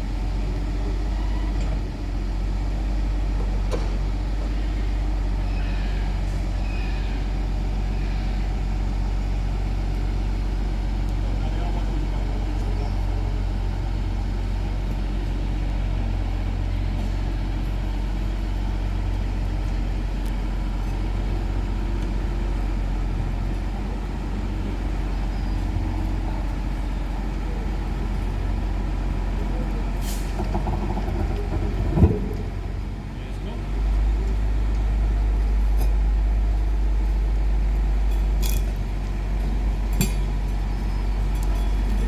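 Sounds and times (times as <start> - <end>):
tram hum and rumble: 0.0 - 42.0.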